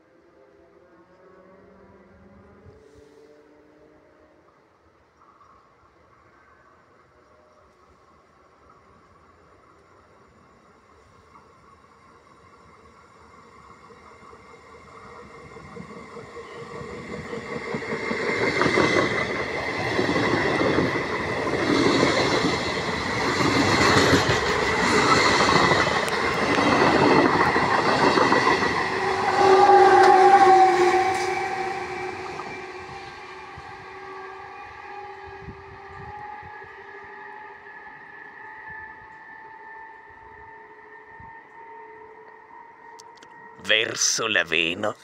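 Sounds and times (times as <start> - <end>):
train horn: 28.9 - 43.6.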